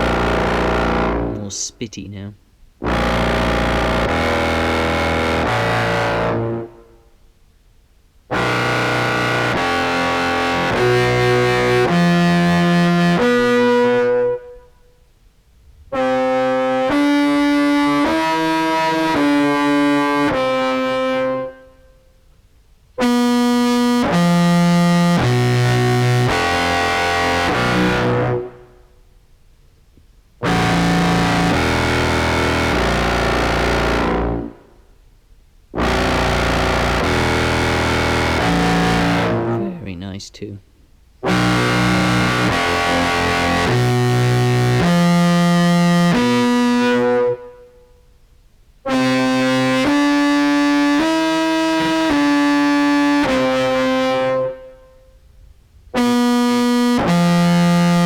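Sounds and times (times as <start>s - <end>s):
distorted contrabass clarinet: 0.0s - 1.6s, 8.4s - 14.5s, 23.0s - 28.6s, 30.4s - 34.6s, 35.8s - 40.0s, 41.3s - 47.6s, 48.9s - 54.6s.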